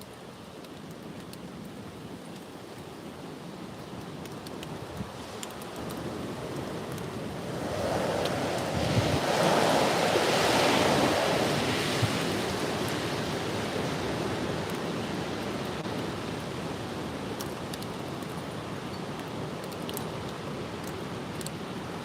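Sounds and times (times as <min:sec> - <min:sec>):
strong wind gusting: 0:06.1 - 0:14.5
wind thumps on microphone: 0:08.1 - 0:09.8.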